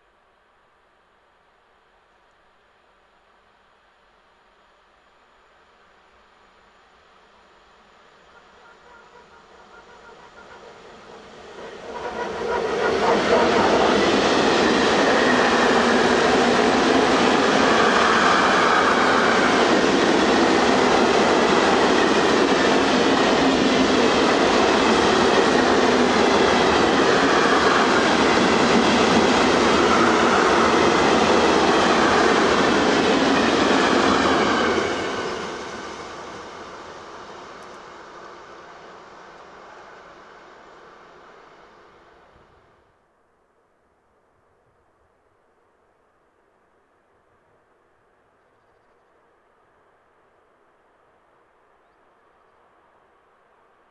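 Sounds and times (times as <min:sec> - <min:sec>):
train passing at speed: 0:05.7 - 0:43.0.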